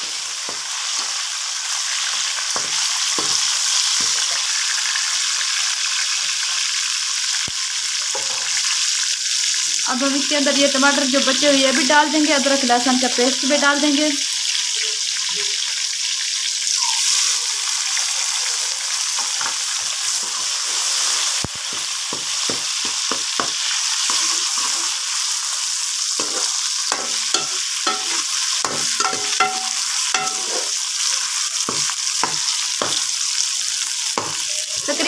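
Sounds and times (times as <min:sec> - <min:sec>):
food frying in hot oil: 0:00.0 - 0:35.0
steel spoon scraping and knocking pot: 0:26.2 - 0:30.8.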